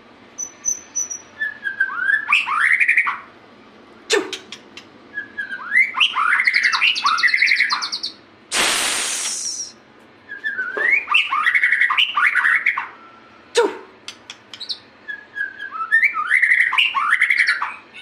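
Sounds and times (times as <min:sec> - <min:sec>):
bird singing varied phrases: 0:00.3 - 0:03.4, 0:04.3 - 0:08.3, 0:09.4 - 0:13.5, 0:14.1 - 0:18.0
loud burst of noise: 0:08.5 - 0:09.7.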